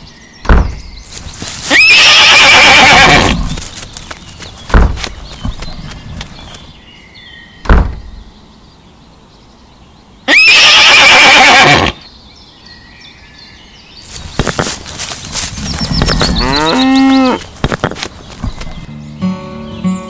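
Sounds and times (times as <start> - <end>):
short thump: 0.5 - 0.8, 4.7 - 5.6, 7.6 - 8.2
horse whinnying: 1.7 - 3.6, 10.3 - 12.0, 16.0 - 17.4.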